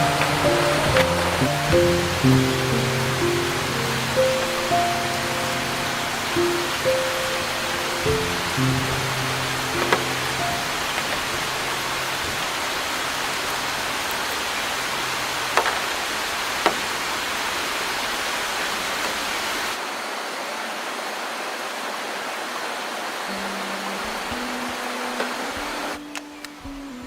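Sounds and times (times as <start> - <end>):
faint background music: 0.0 - 13.1, 23.3 - 27.0
river rushing: 0.0 - 27.0.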